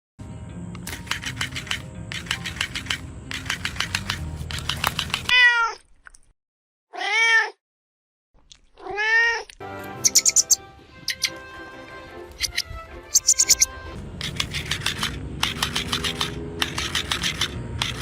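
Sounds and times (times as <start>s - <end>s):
fast run of sharp clicks: 0.8s - 5.3s, 14.2s - 18.0s
cat meowing: 5.3s - 5.8s, 6.9s - 7.6s, 8.8s - 10.5s.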